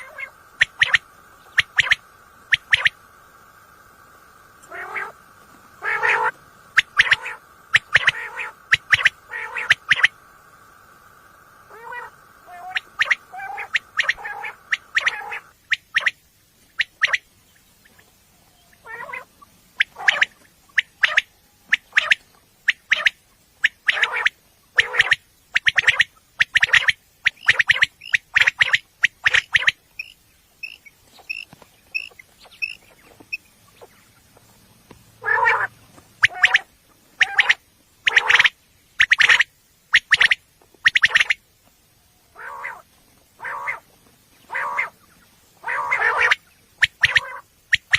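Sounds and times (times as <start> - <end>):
quail calling: 0.0 - 10.6, 11.3 - 18.0, 18.6 - 34.2, 35.2 - 41.4, 42.3 - 47.9
steady tone: 0.0 - 15.6.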